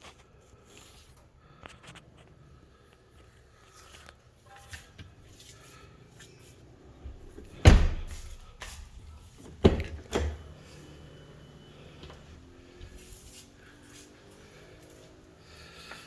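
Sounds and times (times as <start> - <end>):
car doors shutting: 7.0 - 8.5, 9.4 - 10.6.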